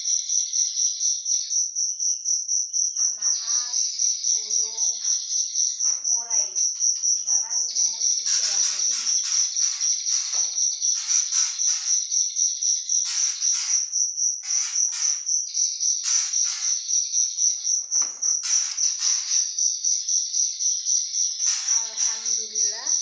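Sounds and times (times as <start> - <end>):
cricket chirping: 0.0 - 23.0.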